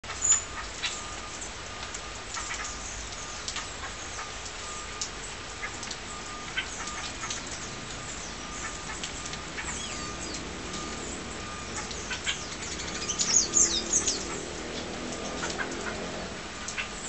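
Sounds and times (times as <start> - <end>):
many birds chirping: 5.8 - 17.0.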